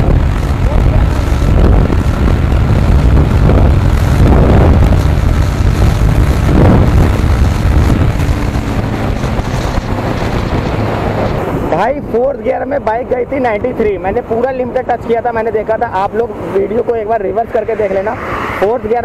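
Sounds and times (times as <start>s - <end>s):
motorcycle engine at full throttle: 0.0s - 12.2s
wind rush on microphone: 0.0s - 19.0s.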